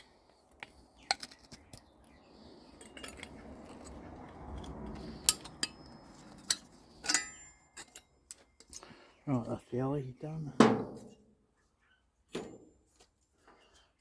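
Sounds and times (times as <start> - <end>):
scrap aluminium scraping rustle: 1.0 - 9.0, 10.5 - 11.4
sharp metallic clinks: 2.8 - 8.8.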